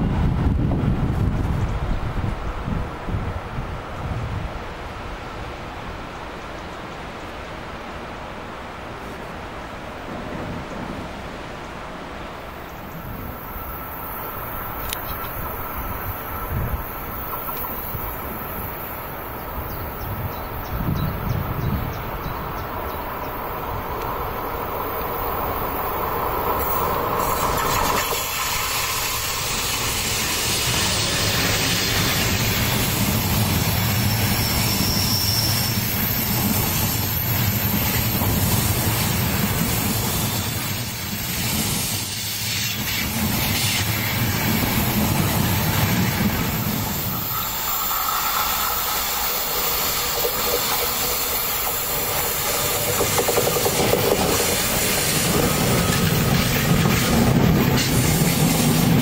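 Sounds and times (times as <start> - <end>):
train wheels rumbling on rails: 10.0 - 59.0.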